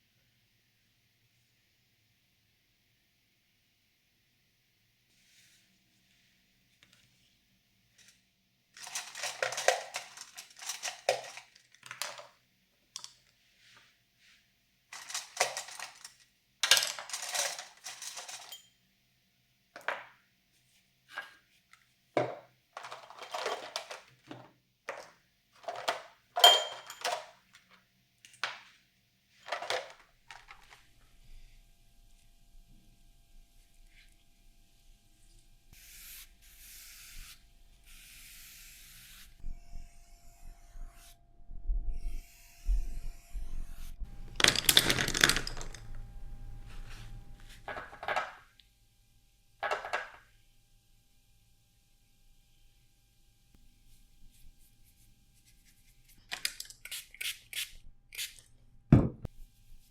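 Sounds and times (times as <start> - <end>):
small hard objects clattering: 8.8 - 12.4, 14.9 - 18.6, 22.2 - 27.8, 29.4 - 30.9, 44.2 - 46.1.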